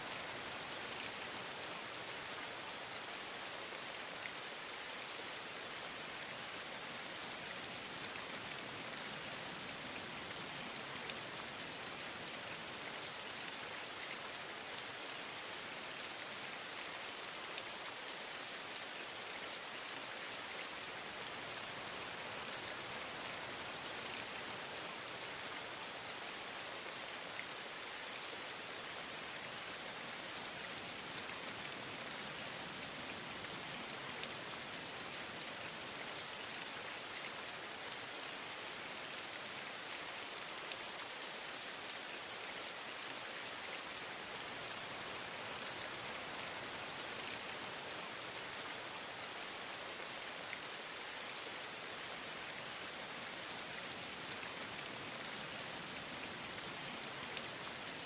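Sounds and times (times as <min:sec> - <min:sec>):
dense rain hiss: 0:00.0 - 0:58.0
light raindrop ticks: 0:05.1 - 0:14.9, 0:42.9 - 0:49.2.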